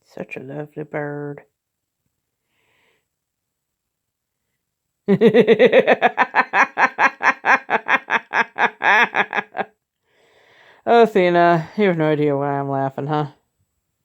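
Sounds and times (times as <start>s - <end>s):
woman laughing hard: 5.1s - 9.7s.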